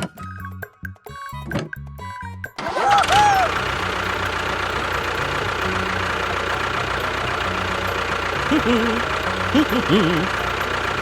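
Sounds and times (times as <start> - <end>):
engine idling hum: 2.5 - 11.0.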